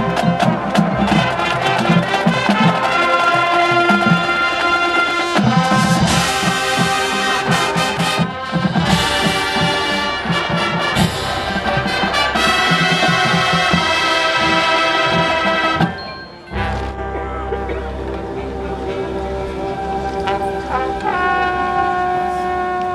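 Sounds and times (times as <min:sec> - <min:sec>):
drums keeping a steady beat: 0:00.0 - 0:21.2
marching band playing: 0:00.0 - 0:22.9.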